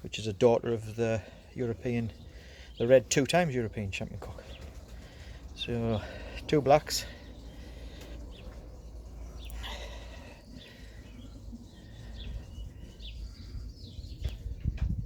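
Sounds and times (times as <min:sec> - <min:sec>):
steady low rumble: 0:00.0 - 0:15.0
faint bird chirps: 0:04.2 - 0:15.0.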